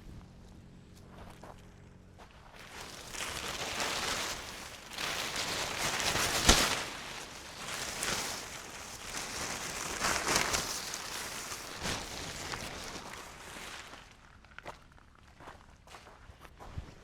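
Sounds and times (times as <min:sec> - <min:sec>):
rustling in dry leaves: 0:02.4 - 0:15.6.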